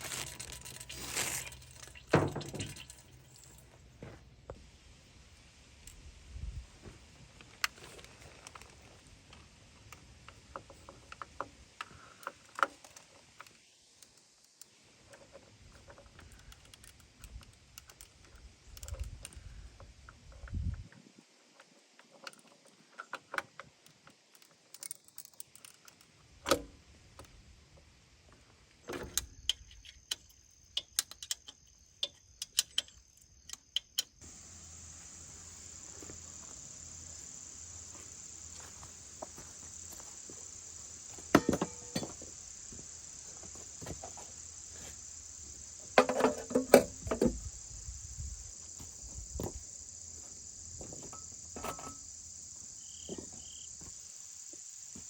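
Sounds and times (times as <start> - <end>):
high insect chirring: 29.3 - 55.0
sharp clicks and knocks: 41.2 - 42.3.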